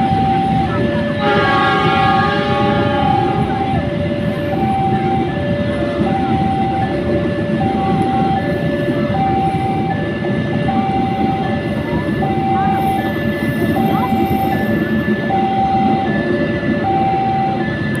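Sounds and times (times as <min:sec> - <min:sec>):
level crossing two-tone alarm: 0:00.0 - 0:18.0
passing train rumble: 0:00.0 - 0:18.0.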